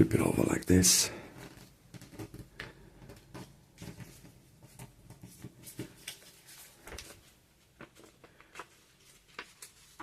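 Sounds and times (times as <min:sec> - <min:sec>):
paper rustling and crackling: 0:01.3 - 0:10.0.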